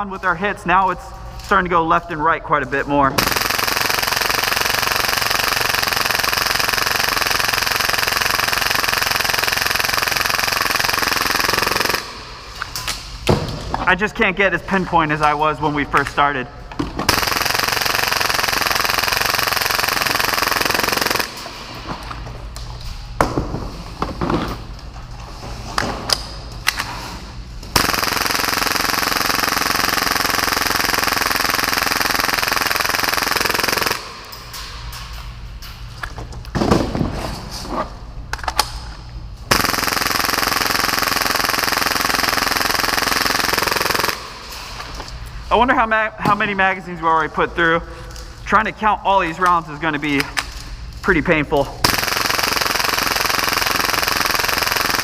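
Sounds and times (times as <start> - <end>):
airsoft pistol firing bursts: 3.2 - 12.3, 17.1 - 21.4, 27.7 - 34.3, 39.5 - 44.4, 51.8 - 55.0.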